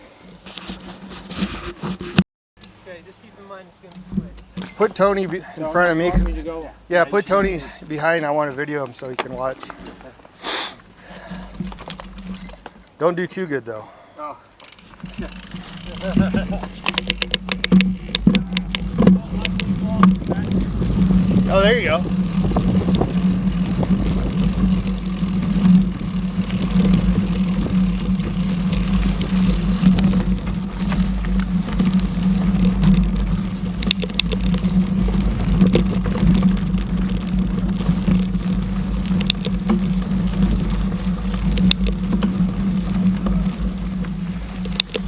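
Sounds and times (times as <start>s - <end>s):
bike tyres rumbling on trail: 0.0s - 13.8s, 14.5s - 45.0s
wind on microphone: 16.1s - 45.0s.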